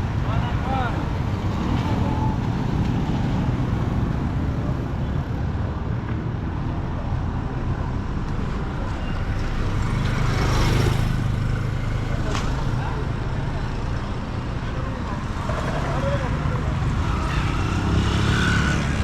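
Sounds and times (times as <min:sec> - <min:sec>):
road traffic: 0:00.0 - 0:19.0
vehicle engine and road noise: 0:00.0 - 0:19.0.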